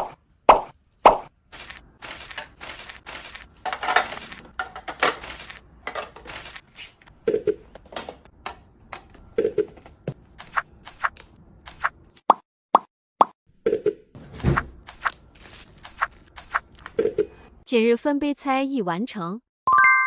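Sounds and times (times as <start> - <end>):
packaging rustling: 1.6 - 6.6, 14.9 - 16.9
containers clicking and knocking: 3.4 - 6.4, 7.6 - 10.2.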